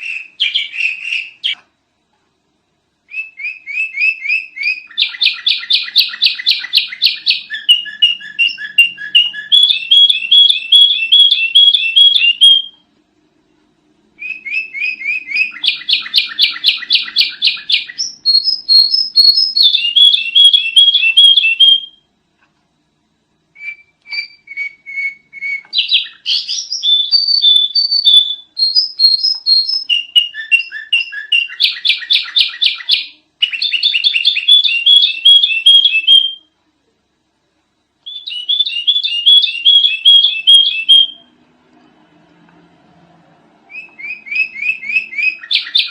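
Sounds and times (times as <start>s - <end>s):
bulbul singing rapid chirps: 14.2s - 21.9s.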